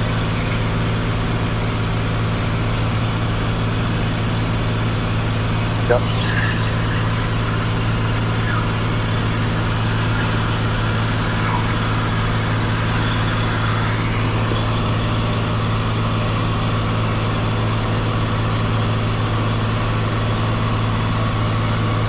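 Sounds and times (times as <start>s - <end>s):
airplane engine and propeller droning: 0.0s - 22.0s.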